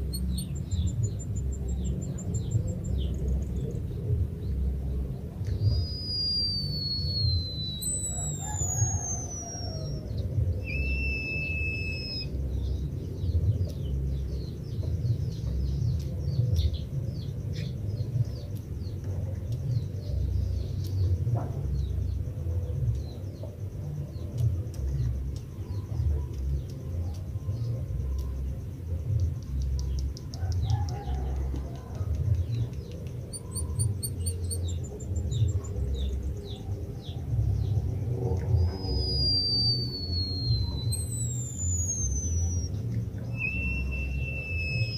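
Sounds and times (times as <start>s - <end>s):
low rumble: 0.0s - 30.2s, 31.4s - 44.9s
bird drawn-out whistle: 5.5s - 12.4s, 38.4s - 44.9s.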